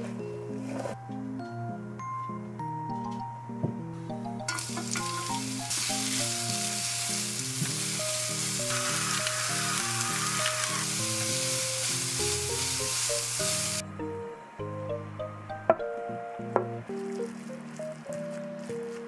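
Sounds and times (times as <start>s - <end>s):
soft background music: 0.0s - 19.0s
carrots sizzling in hot oil: 4.5s - 13.8s
spatula stirring in pan: 7.3s - 13.1s.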